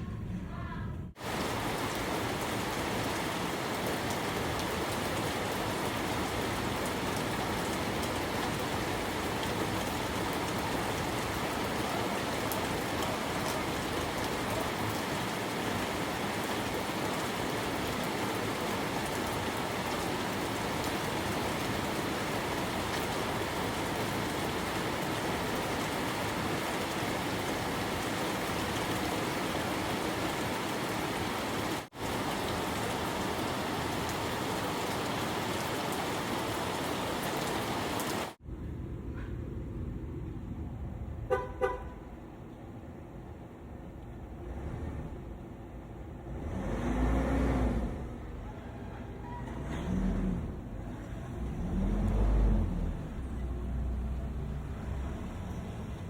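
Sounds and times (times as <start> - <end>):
steady rain hiss: 1.1 - 38.4.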